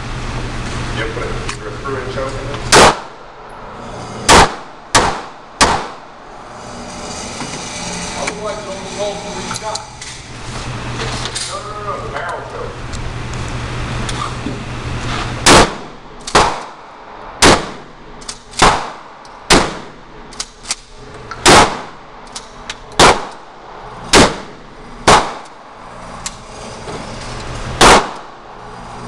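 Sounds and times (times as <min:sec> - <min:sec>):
fainter gunshots: 0:02.7 - 0:03.2, 0:04.2 - 0:06.0, 0:15.4 - 0:17.9, 0:18.6 - 0:20.0, 0:21.4 - 0:22.0, 0:23.0 - 0:23.5, 0:24.1 - 0:25.5, 0:27.8 - 0:28.3
loud gunshots: 0:02.7 - 0:03.2, 0:04.2 - 0:06.1, 0:15.4 - 0:18.0, 0:18.6 - 0:20.0, 0:21.4 - 0:22.0, 0:23.0 - 0:23.5, 0:24.1 - 0:25.6, 0:27.8 - 0:28.4.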